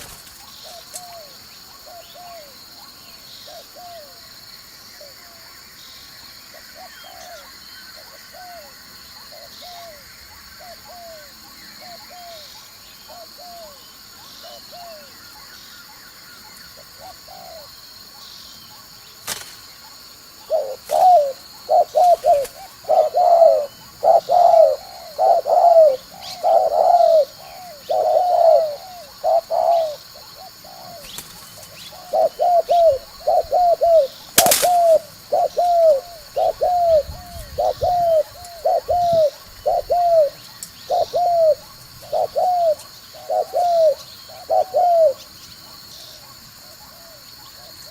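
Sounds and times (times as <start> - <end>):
dove cooing: 0.0 - 2.6, 14.4 - 15.1, 16.8 - 17.8, 20.4 - 45.3
sharp clicks: 34.4 - 34.9.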